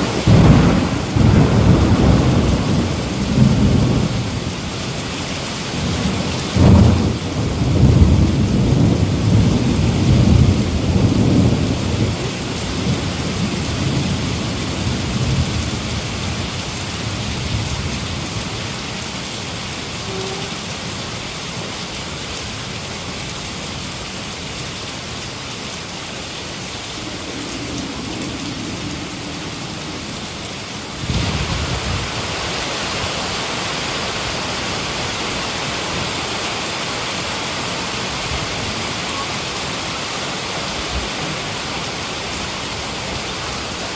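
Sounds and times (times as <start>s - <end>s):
thunder rumbling: 0.0s - 5.0s, 5.6s - 18.8s, 26.3s - 33.4s
heavy rain falling: 0.0s - 43.9s.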